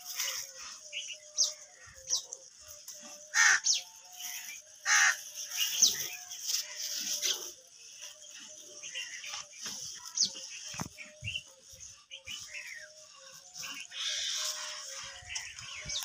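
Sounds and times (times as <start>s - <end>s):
harsh bird calls: 3.2s - 7.6s, 8.7s - 16.0s.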